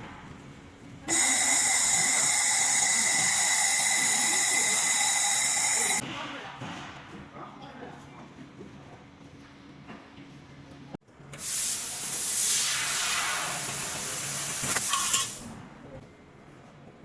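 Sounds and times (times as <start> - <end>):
gas hissing from laser nozzle: 1.1 - 6.0, 11.4 - 15.5.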